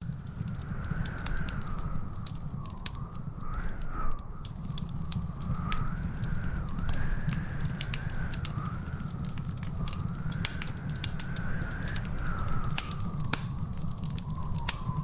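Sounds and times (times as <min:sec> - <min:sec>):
wood fire crackling: 0:00.0 - 0:15.0
thin whistling tone: 0:11.0 - 0:15.0.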